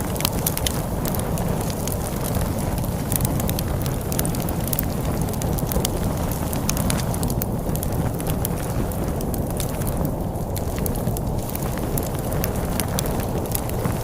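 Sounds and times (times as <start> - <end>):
low rumble of storm wind: 0.0 - 14.0
wood fire crackling and popping: 0.0 - 14.0.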